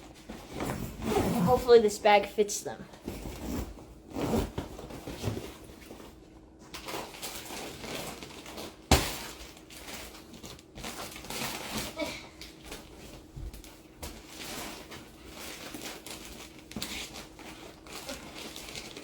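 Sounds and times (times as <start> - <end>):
plastic bags rustling: 6.8 - 19.0.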